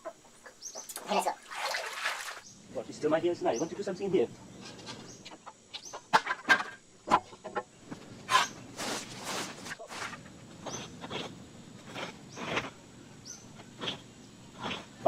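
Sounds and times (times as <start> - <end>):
irregular scrapes and knocks: 7.9 - 12.8.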